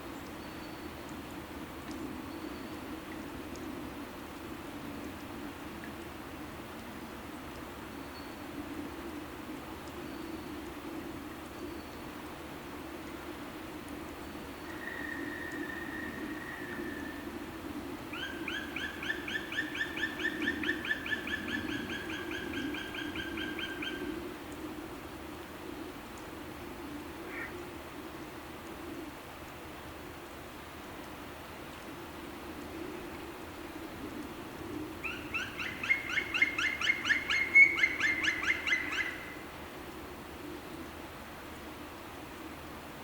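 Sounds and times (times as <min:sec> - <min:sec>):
background hiss: 0:00.0 - 0:43.0.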